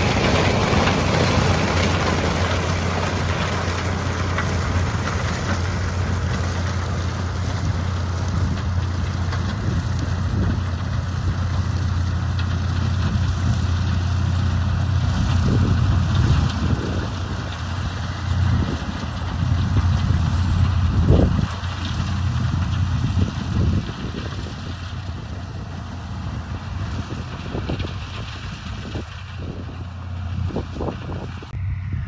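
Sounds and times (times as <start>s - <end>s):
heavy farm machine engine drone: 0.0s - 32.0s
even rushing noise: 25.0s - 32.0s.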